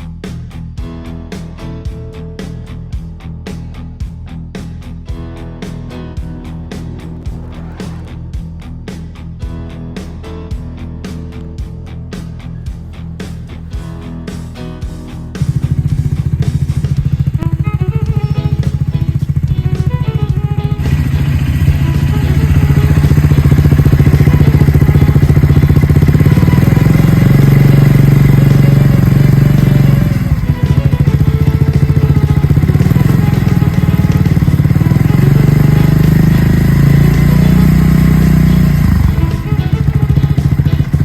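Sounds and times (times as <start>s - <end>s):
motorcycle engine revving: 6.7s - 8.9s, 15.4s - 41.0s.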